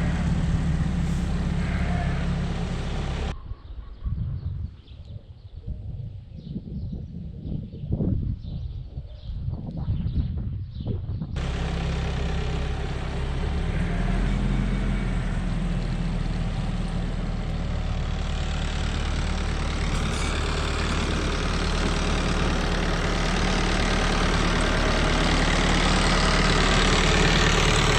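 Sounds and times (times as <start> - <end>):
tractor engine running: 0.0 - 3.4, 11.4 - 27.9.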